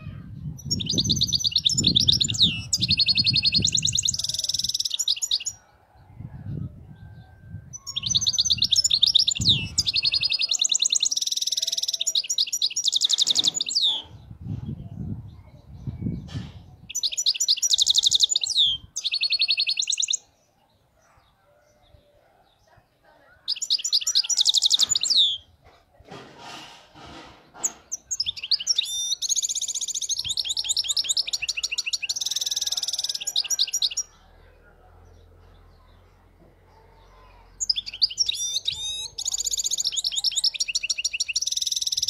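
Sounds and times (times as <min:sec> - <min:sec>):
finch singing high trills: 0:07.7 - 0:14.3, 0:27.9 - 0:34.1, 0:37.6 - 0:42.0.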